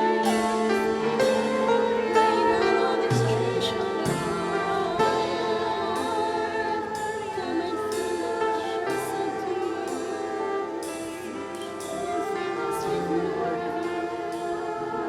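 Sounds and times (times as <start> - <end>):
group singing worship song: 0.0 - 15.0
instrumental accompaniment: 0.0 - 15.0.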